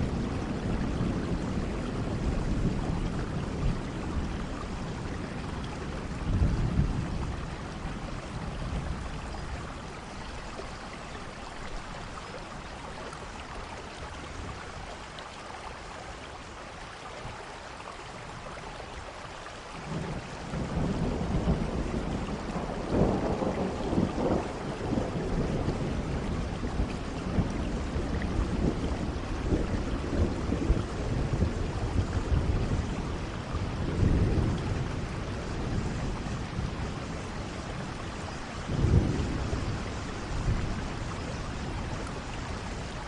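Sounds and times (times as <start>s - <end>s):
thunder rumbling: 0.0s - 11.0s, 19.8s - 43.0s
steady rain: 0.0s - 43.0s.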